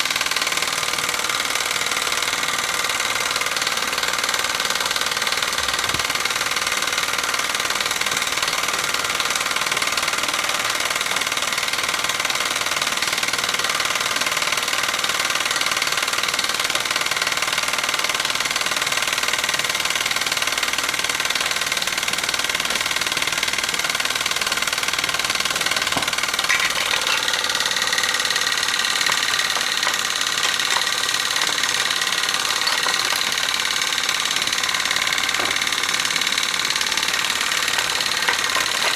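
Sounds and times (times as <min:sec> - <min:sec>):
steam engines clattering: 0:24.6 - 0:38.9.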